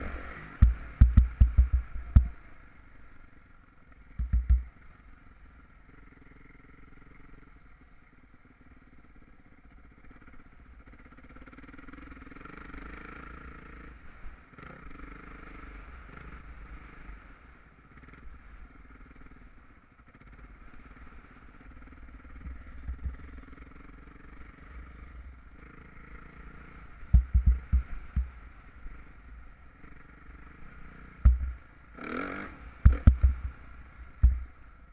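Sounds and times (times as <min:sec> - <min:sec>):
distant motocross engine revving: 0:00.0 - 0:02.4, 0:20.2 - 0:34.9
loud low thumps: 0:27.1 - 0:28.3, 0:31.2 - 0:31.6, 0:34.2 - 0:34.5.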